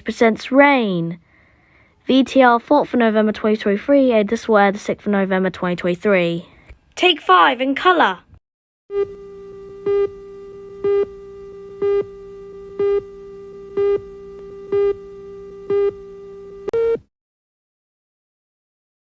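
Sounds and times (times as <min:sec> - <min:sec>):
steady buzzy tone: 0:08.9 - 0:17.0.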